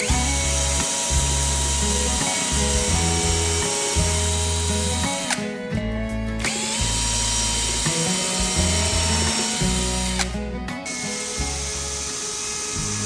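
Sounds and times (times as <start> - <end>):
background music: 0.0 - 13.0
power drill whining: 0.0 - 13.0.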